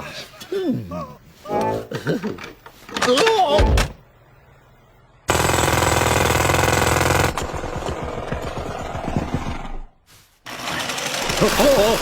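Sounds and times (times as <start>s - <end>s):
loud rapid mechanical rattle: 10.5s - 12.0s.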